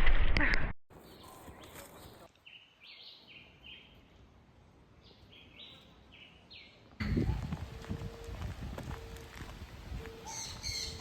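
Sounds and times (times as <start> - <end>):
bird singing faintly: 10.0 - 11.0.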